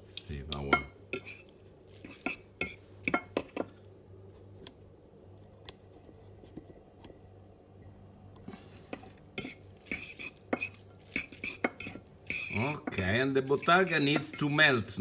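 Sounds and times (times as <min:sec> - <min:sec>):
metal utensils clinking on pan: 0:00.6 - 0:03.7, 0:08.9 - 0:14.8.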